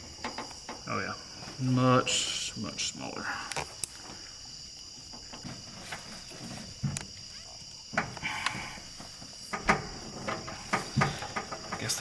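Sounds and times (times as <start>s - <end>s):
crickets chirping: 0.0s - 12.0s
light clicks and knocks: 0.2s - 0.9s, 7.9s - 12.0s.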